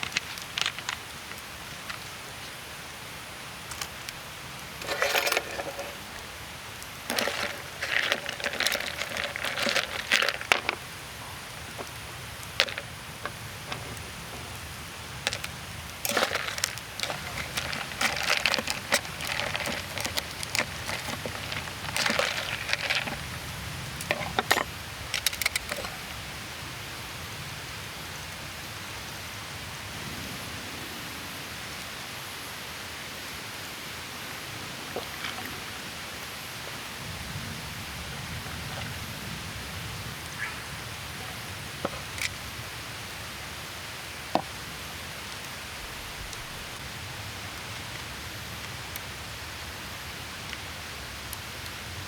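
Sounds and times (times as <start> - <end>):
rustling and crinkling: 0.0 - 2.6, 4.7 - 6.3, 7.0 - 26.1, 41.8 - 42.5.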